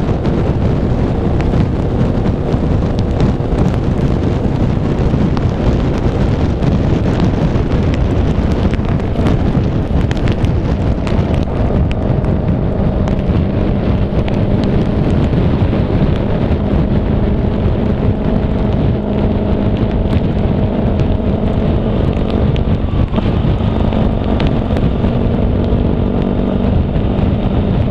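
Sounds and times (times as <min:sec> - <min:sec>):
tyre and road noise: 0:00.0 - 0:27.9
raindrop clicks: 0:05.4 - 0:26.4.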